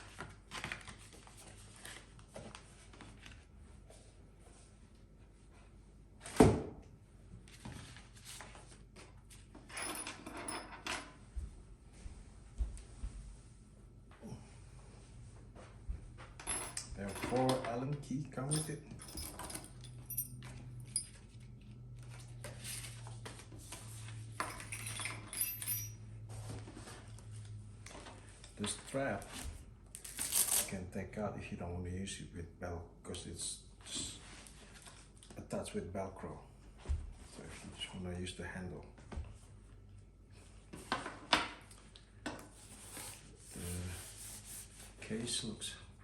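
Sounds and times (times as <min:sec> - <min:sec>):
low steady hum: 0:09.6 - 0:40.7.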